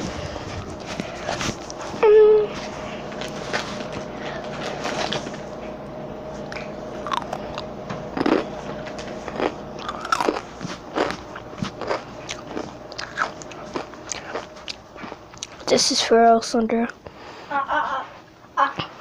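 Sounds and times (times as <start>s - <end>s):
chips being chewed: 6.5s - 15.7s.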